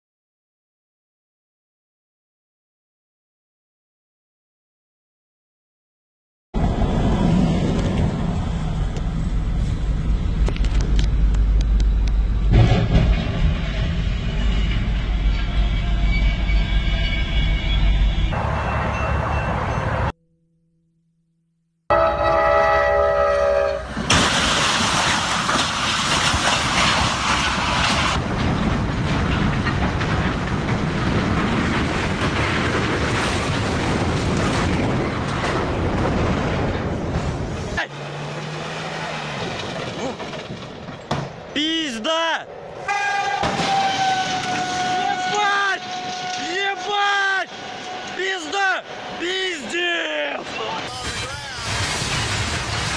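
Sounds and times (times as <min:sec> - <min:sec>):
vehicle rumbling: 0:06.6 - 0:20.2, 0:21.9 - 0:52.9
wheels clattering on rails: 0:23.5 - 0:41.5, 0:43.0 - 0:46.9.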